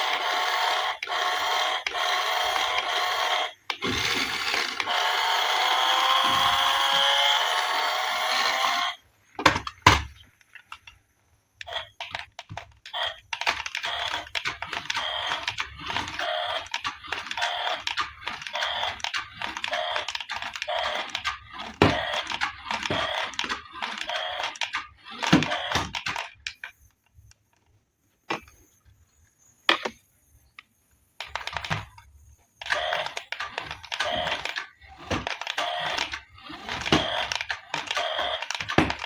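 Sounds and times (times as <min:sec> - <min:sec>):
steady whirring: 0:00.0 - 0:09.2, 0:11.6 - 0:26.7, 0:29.4 - 0:39.0
sharp clicks: 0:11.6 - 0:27.7, 0:29.7 - 0:39.0.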